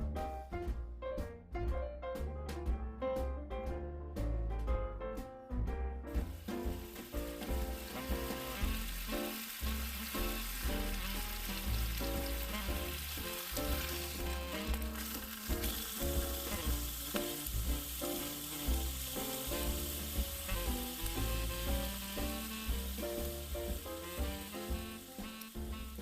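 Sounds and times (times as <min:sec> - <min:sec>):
steak sizzling in a pan: 0:06.2 - 0:26.0.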